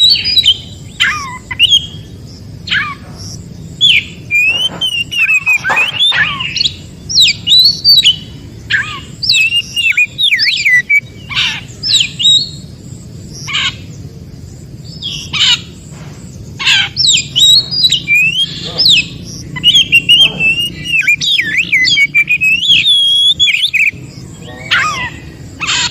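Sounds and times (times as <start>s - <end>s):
bird singing whistled phrases: 0.0s - 2.1s, 3.8s - 12.6s, 16.7s - 25.4s
harsh rasping bird calls: 0.0s - 25.9s.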